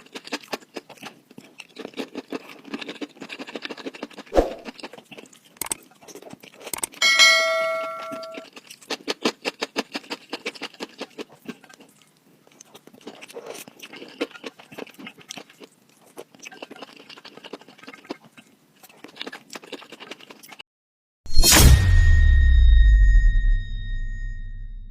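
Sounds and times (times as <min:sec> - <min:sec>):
chewing and mouth clicks: 0:00.0 - 0:07.0, 0:08.4 - 0:20.6
utensil clinking against dish: 0:07.0 - 0:08.4.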